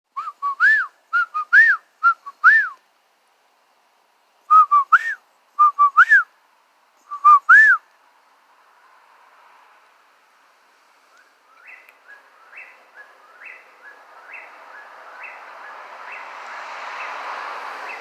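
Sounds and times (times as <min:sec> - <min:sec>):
person whistling bird call: 0:00.2 - 0:02.8, 0:04.5 - 0:06.3, 0:07.1 - 0:07.8.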